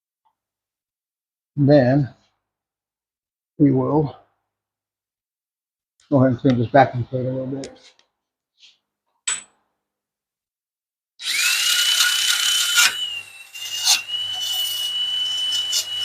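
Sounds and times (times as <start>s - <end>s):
power tool grinding rust: 11.2s - 16.0s.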